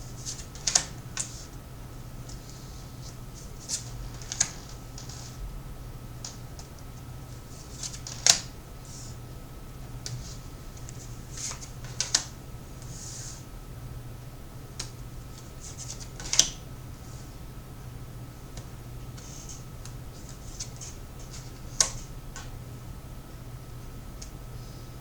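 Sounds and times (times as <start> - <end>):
cards rustling and sliding: 2.3 - 5.4.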